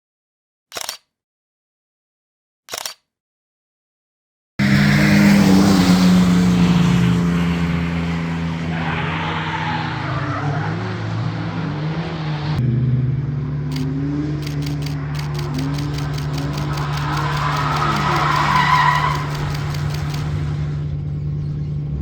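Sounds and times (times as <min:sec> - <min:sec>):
car engine revving hard: 0:04.6 - 0:20.9
rapid sharp clicks: 0:13.7 - 0:20.8.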